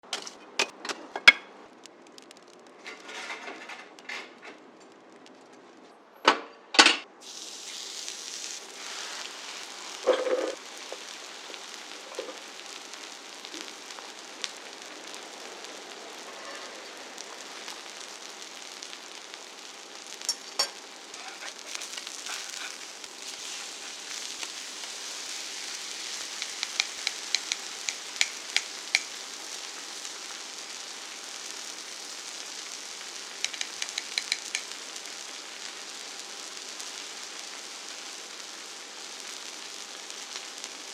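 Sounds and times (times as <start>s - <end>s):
pork sizzling on a griddle: 2.1s - 4.4s, 7.2s - 40.9s
sharp ticks: 26.4s - 29.1s, 33.4s - 34.7s.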